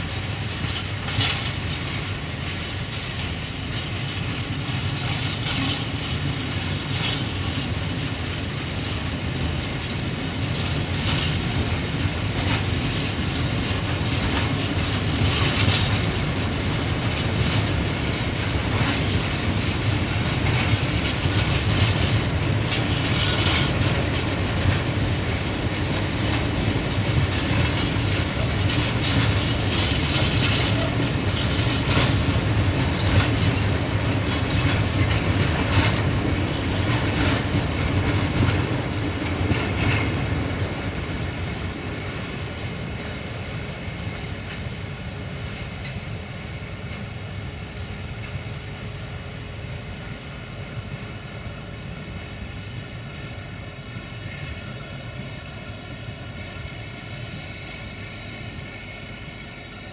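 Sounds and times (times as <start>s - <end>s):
wheels clanking over rail joints: 0.0s - 43.2s
train wheels rumbling on rails: 0.0s - 59.9s.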